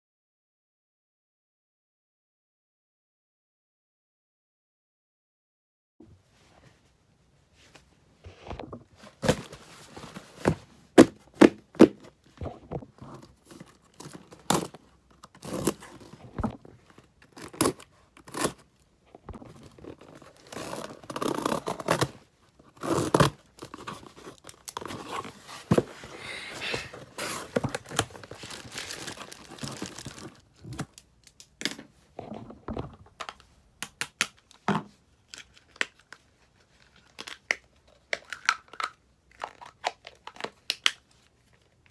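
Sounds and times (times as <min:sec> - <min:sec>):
wrapping crinkling and rustling: 0:08.7 - 0:18.7, 0:19.3 - 0:31.6, 0:34.5 - 0:41.9
packaging ripping and snapping: 0:13.2 - 0:16.1, 0:17.2 - 0:18.6, 0:19.6 - 0:22.2, 0:22.8 - 0:31.6.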